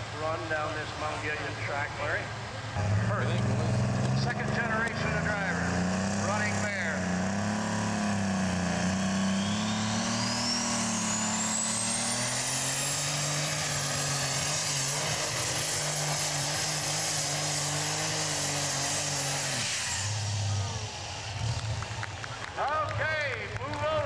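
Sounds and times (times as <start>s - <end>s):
tractor engine running hard: 0.0s - 24.0s
turbo whine: 4.1s - 21.8s.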